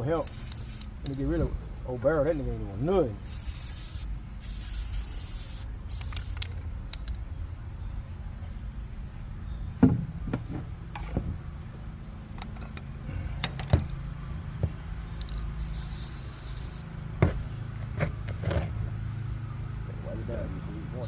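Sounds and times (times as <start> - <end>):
steady low hum: 0.0 - 21.0
spray can hiss: 0.2 - 0.9, 3.2 - 6.6, 15.3 - 16.9.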